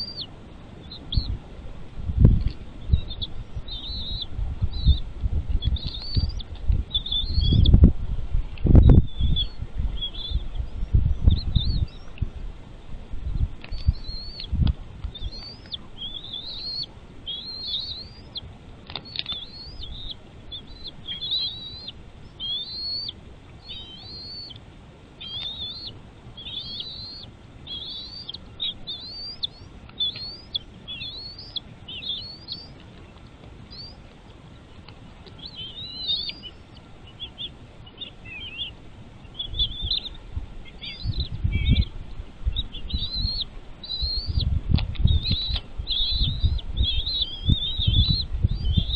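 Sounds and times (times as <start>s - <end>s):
eagle chirping calls: 0.0s - 1.4s, 2.4s - 7.9s, 8.6s - 12.2s, 13.2s - 24.6s, 25.2s - 48.9s
low rumble: 0.8s - 15.4s.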